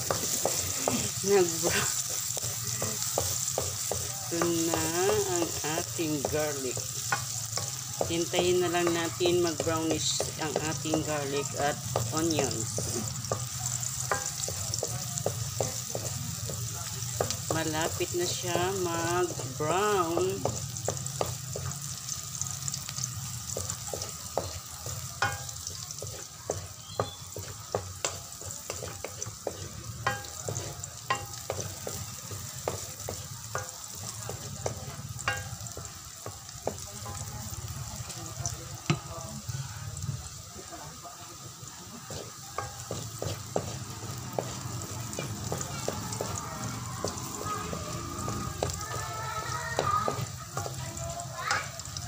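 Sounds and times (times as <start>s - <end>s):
spatula scraping and clicking on pan: 0.0s - 5.5s, 11.9s - 17.4s, 22.8s - 36.8s
garlic and onions sizzling: 0.0s - 52.0s.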